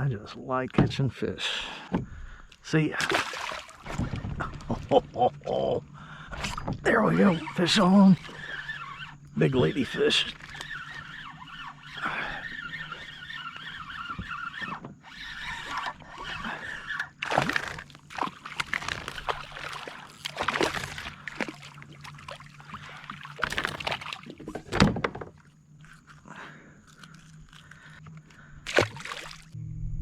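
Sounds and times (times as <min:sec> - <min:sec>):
water splashing and sloshing: 0:01.9 - 0:29.6.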